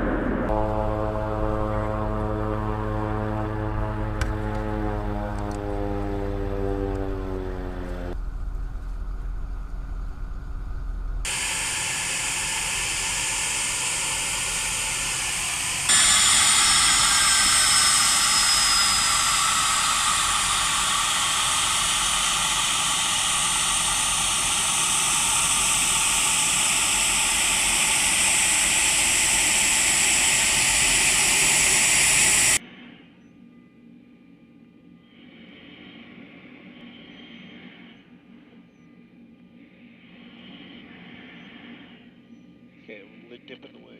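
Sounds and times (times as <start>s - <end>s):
jet engine rushing hiss: 11.2s - 32.6s.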